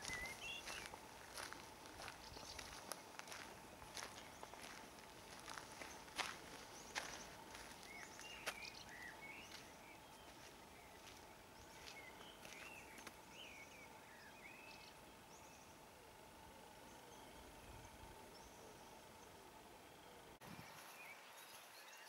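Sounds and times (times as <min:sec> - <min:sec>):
faint small birds chirping: 0:00.0 - 0:22.0.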